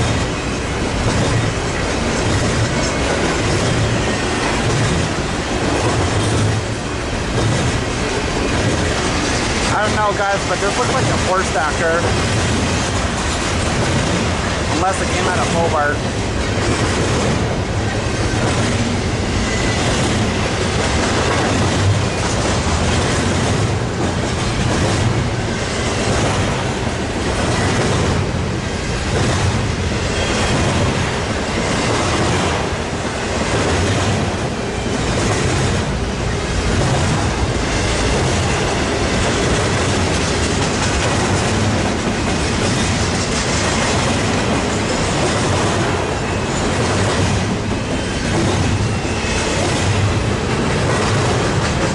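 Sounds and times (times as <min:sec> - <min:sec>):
freight train wheels rumbling on rail: 0:00.0 - 0:51.9
wheels clicking over rail joints: 0:00.0 - 0:51.9.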